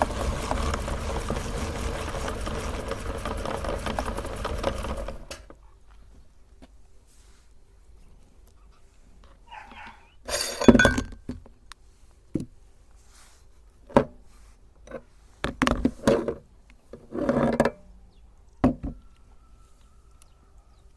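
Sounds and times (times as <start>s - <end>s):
ice cream cones crunching in grinder: 0.0s - 5.4s.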